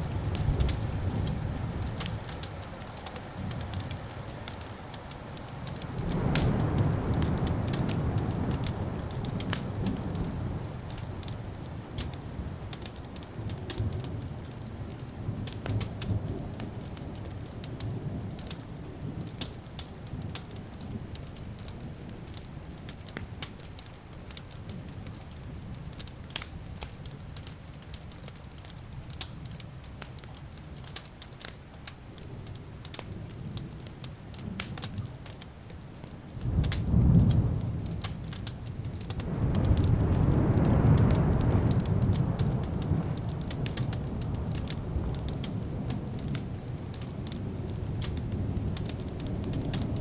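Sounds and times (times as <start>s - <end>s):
wood fire crackling: 0.0s - 50.0s
low rolling thunder: 5.8s - 12.8s, 36.4s - 50.0s.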